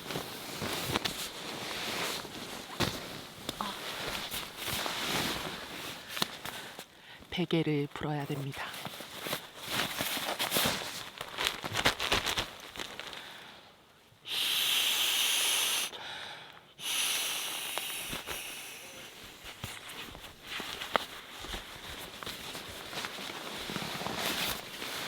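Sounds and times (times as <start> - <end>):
rustling and clicking of pillow: 0.0 - 7.0, 8.4 - 13.2, 19.1 - 25.0
air hissing into pillow: 14.2 - 16.0, 16.8 - 20.1.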